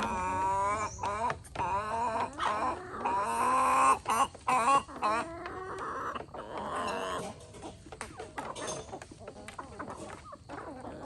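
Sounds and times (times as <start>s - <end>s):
chickens clucking and calling: 0.0s - 11.0s.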